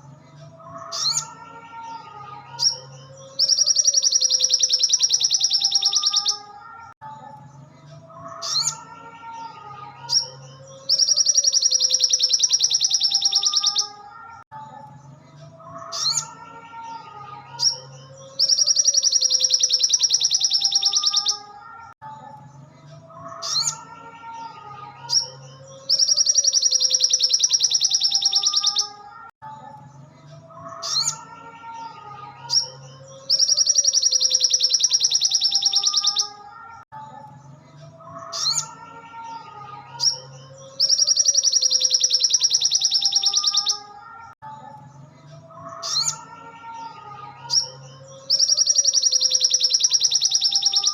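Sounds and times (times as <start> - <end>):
songbird chirping and warbling: 0.0 - 50.9
rapid buzzy bird trill: 10.1 - 14.0, 32.5 - 36.4, 40.8 - 44.3, 47.5 - 50.9.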